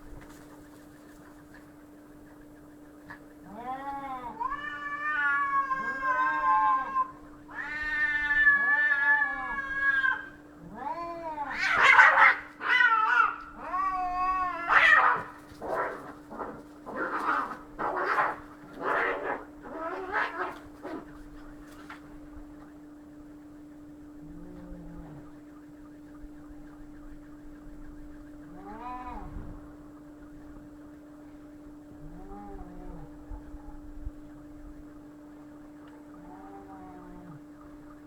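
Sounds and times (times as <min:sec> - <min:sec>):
cats yowling and screeching: 0:03.4 - 0:22.0, 0:28.4 - 0:29.6, 0:36.2 - 0:37.4.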